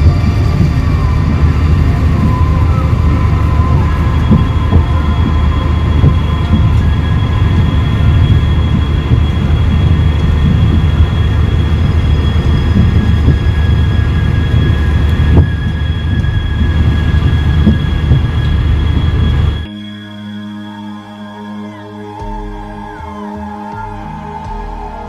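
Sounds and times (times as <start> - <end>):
train rumbling on rails: 0.0 - 19.8
high steady squeal: 0.0 - 25.0.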